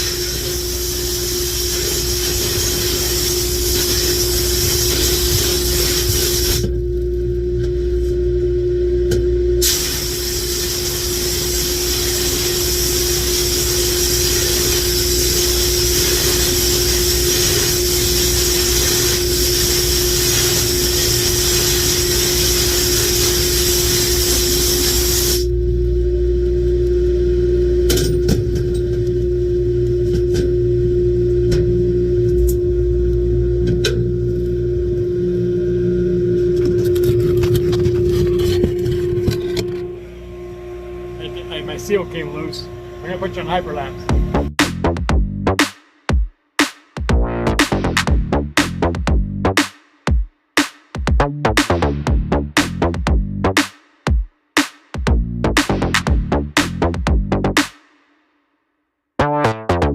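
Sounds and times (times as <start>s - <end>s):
compressed air blasting hiss: 0.0s - 6.7s, 9.6s - 25.5s
steady motor hum: 0.0s - 44.6s.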